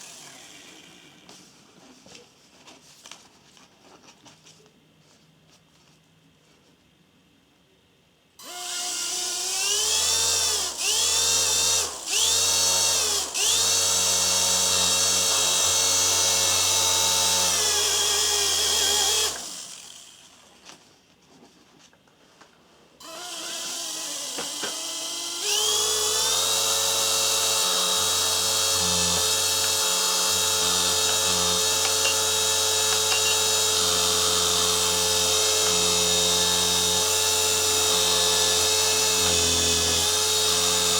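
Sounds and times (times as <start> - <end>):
toy helicopter rotor whining: 0.0 - 1.2, 17.2 - 20.3, 23.0 - 36.7.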